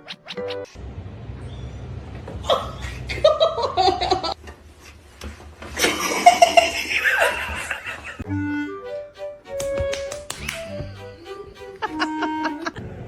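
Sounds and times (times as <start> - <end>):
person laughing: 2.4 - 4.4, 5.8 - 8.2, 10.7 - 13.0.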